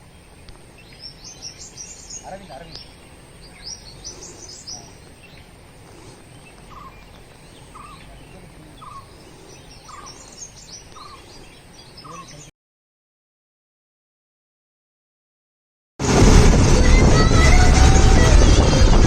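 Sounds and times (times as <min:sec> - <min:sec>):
birds chirping: 0:00.0 - 0:12.5.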